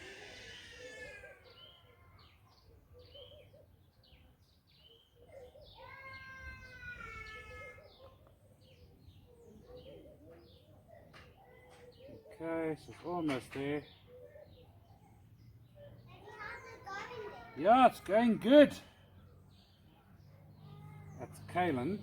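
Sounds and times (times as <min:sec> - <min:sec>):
young child crying: 0:00.0 - 0:02.3, 0:05.8 - 0:08.0
small birds chirping: 0:00.0 - 0:22.0.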